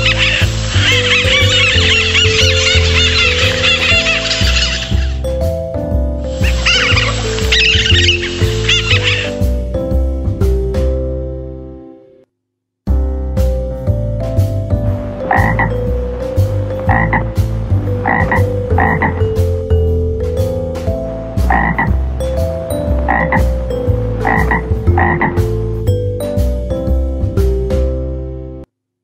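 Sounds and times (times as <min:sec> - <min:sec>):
frog croaking: 0:00.0 - 0:05.4, 0:06.3 - 0:09.6, 0:14.8 - 0:25.8
background music with bass line: 0:00.0 - 0:12.0, 0:12.9 - 0:28.7.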